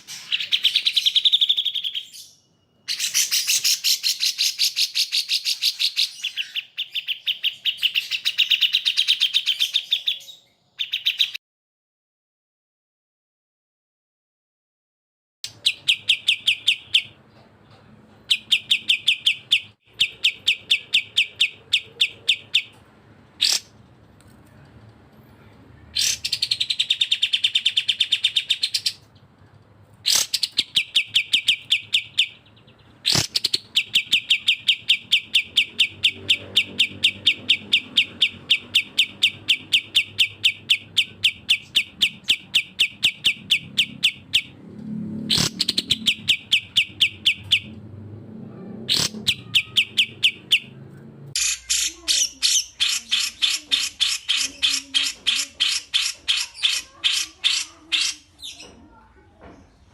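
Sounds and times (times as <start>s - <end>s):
higher bright bird trill: 48.6s - 50.8s, 51.4s - 58.7s
bird trilling sharp notes: 48.9s - 50.8s.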